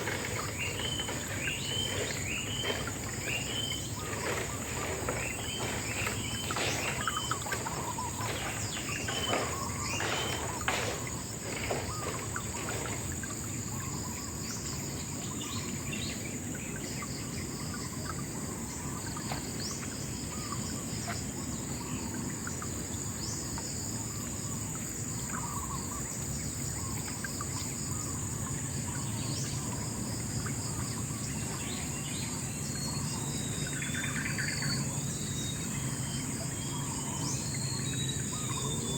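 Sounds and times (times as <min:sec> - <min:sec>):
quick sharp bird calls: 0:00.0 - 0:14.2
birds chirping: 0:00.0 - 0:38.9
insects trilling: 0:00.0 - 0:38.9.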